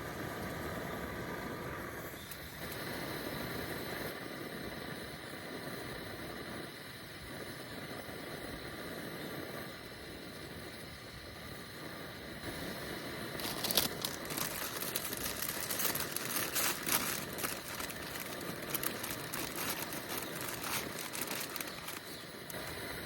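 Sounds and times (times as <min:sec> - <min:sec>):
crinkling rustle of handling: 0:13.3 - 0:22.8.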